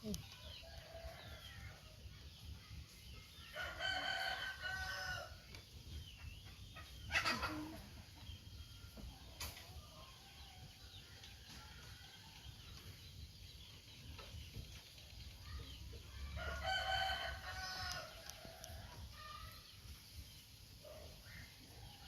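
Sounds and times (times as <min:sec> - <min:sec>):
rooster crowing: 0:03.6 - 0:05.3, 0:16.4 - 0:18.1.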